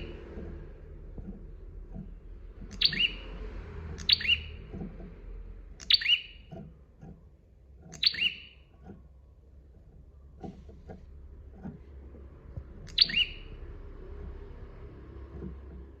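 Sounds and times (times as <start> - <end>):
bird sharp call notes: 2.8 - 3.2, 12.9 - 13.5
faint low bird notes: 10.1 - 16.0.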